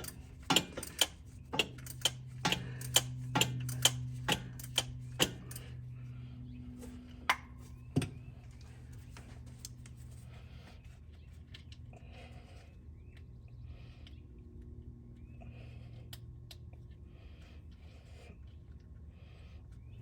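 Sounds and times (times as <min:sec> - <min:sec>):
sharp clicks and knocks: 0:00.0 - 0:05.7
steady low hum: 0:00.0 - 0:20.0.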